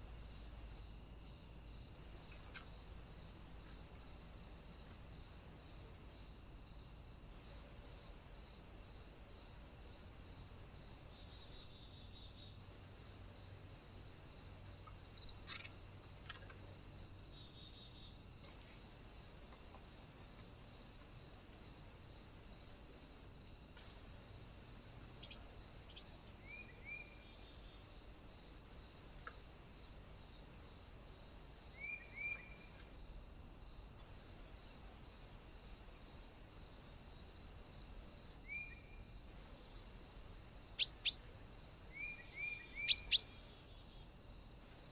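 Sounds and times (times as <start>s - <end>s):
faint bird chirps: 31.7s - 32.8s, 40.8s - 41.3s, 41.9s - 43.5s.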